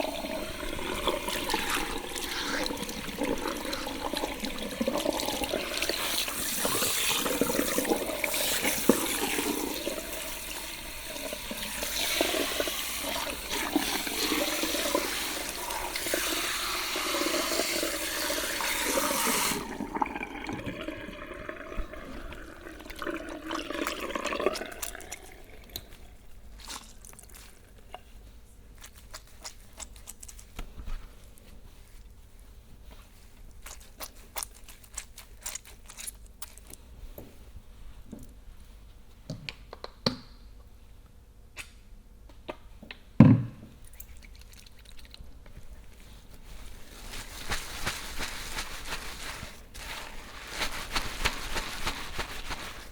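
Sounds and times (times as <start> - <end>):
water trickling through hair: 0.0 - 28.1, 33.0 - 36.8, 43.9 - 52.9
wet hair handling: 22.3 - 28.1, 28.7 - 36.9, 44.0 - 52.9.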